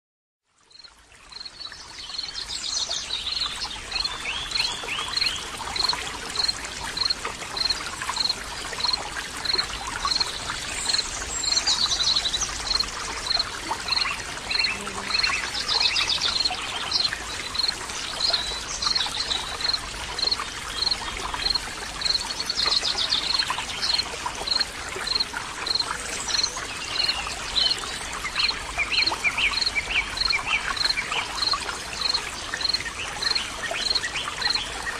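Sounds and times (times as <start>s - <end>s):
flowing water: 0.4s - 34.9s
birds chirping and trilling: 10.1s - 24.6s.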